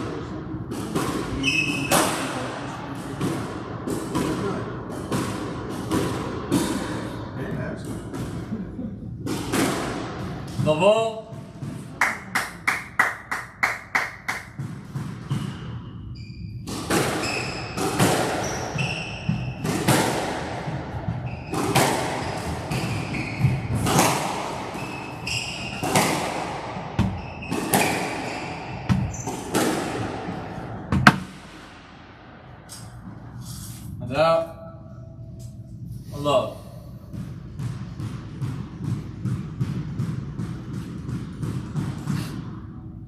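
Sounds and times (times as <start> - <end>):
squash ball hits echoing: 0.0 - 33.4, 37.0 - 43.0
shoe squeaks on court floor: 1.4 - 2.0, 15.2 - 19.6, 21.2 - 23.7, 24.8 - 26.1, 27.0 - 29.5.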